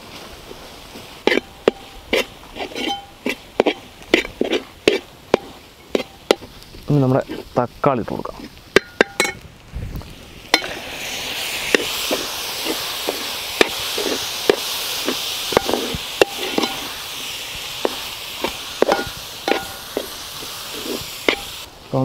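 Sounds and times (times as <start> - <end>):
tomatoes sizzling in hot oil: 0.0 - 22.0
steel skimmer scraping pot: 1.2 - 6.4, 11.7 - 17.0, 17.8 - 20.1, 20.7 - 21.6.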